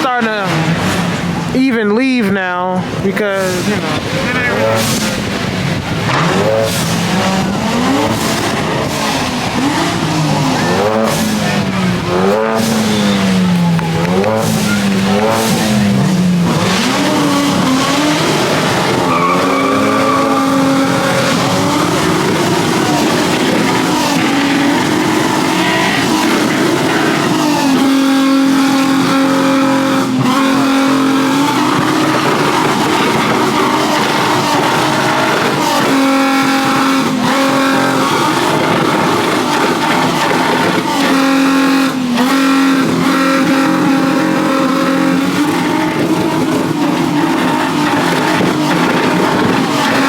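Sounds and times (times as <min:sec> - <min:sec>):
car engines revving: 0:00.0 - 0:50.0
tyre squeals: 0:12.1 - 0:50.0.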